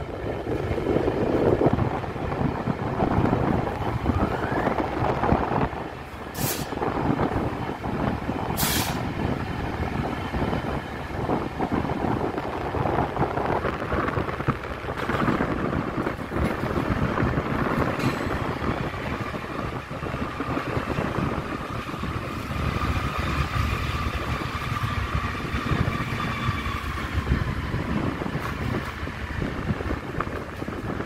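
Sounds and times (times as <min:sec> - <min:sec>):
train rumbling: 0:00.0 - 0:31.0
short hisses: 0:06.4 - 0:06.8, 0:08.6 - 0:09.0.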